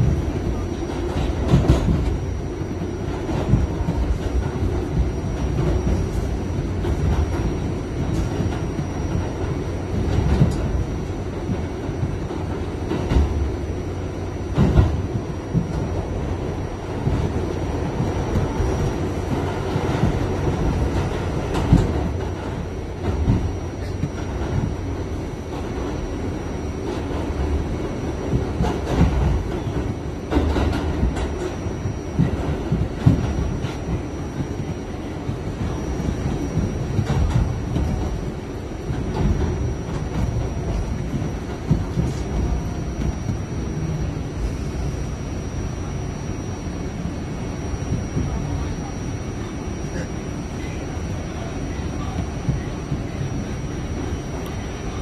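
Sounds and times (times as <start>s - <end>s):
subway car rumble: 0.0s - 55.0s.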